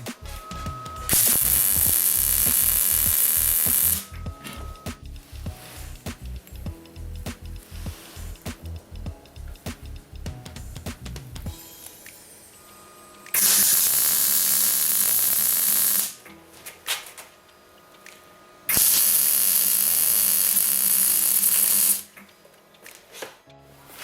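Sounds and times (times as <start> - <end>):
steady hissing spray: 4.8 - 16.2.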